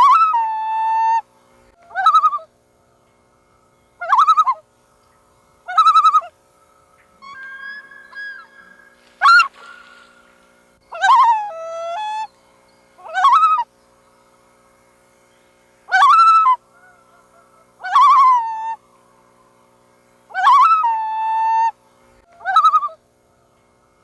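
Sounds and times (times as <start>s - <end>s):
loon calling: 0.0s - 2.6s, 4.0s - 4.7s, 5.6s - 6.4s, 7.0s - 12.3s, 13.0s - 13.7s, 15.9s - 18.8s, 20.3s - 23.0s.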